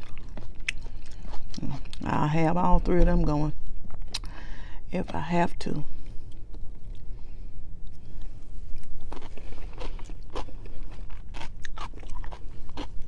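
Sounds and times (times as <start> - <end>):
chewing crisp lettuce: 0.0 - 2.1, 7.9 - 13.0.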